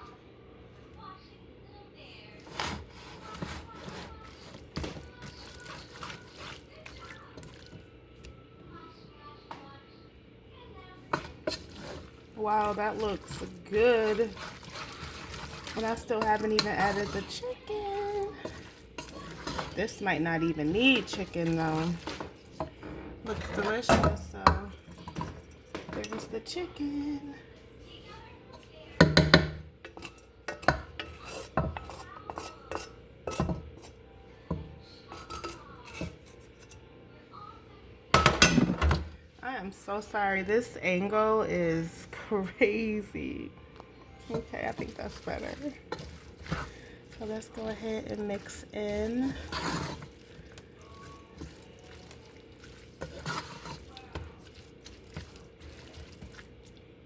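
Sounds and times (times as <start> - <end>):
utensil scraping against a pan: 2.4 - 7.8, 11.1 - 27.3, 28.0 - 34.0, 35.1 - 36.8, 44.1 - 56.8.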